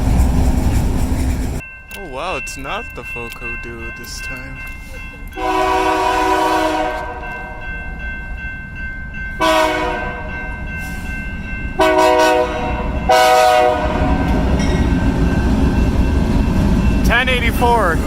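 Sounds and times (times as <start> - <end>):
rumble of approaching train: 0.0 - 1.7, 2.9 - 18.0
locomotive air horn blasts: 5.4 - 7.3, 9.4 - 10.3, 11.8 - 14.5.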